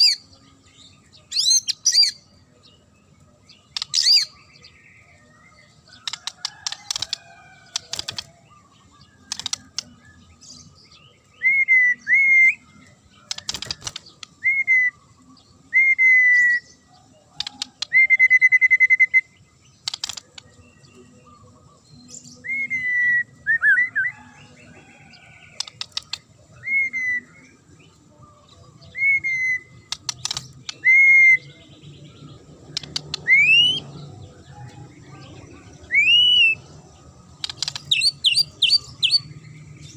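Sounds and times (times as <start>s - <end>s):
bird singing whistled notes: 0.0s - 7.2s, 8.0s - 34.8s, 35.8s - 36.8s, 37.4s - 39.9s
bird clicking rattles: 6.0s - 8.3s, 9.3s - 9.9s, 13.3s - 14.2s, 19.8s - 20.4s, 29.9s - 30.8s, 37.4s - 38.1s.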